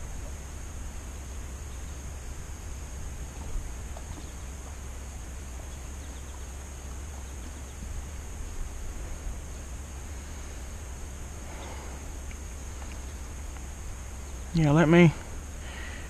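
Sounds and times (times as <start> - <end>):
wind rumble on microphone: 0.0 - 15.7
faint ticks: 11.6 - 15.3.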